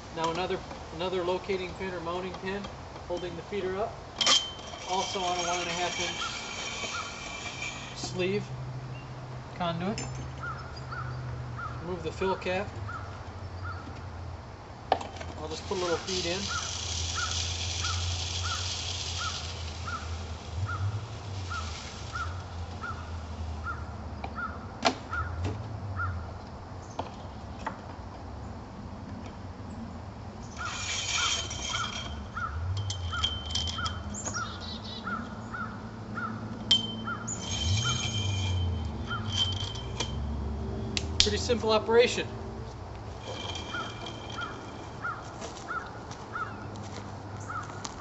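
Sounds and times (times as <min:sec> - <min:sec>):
birdseed pouring into feeder: 0:15.6 - 0:23.1.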